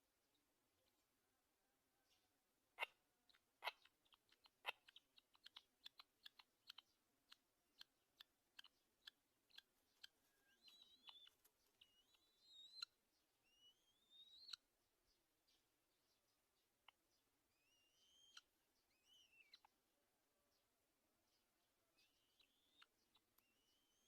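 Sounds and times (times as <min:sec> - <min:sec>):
thin rising squeaky bird calls: 0:07.8 - 0:14.6, 0:17.6 - 0:19.7, 0:22.0 - 0:24.0.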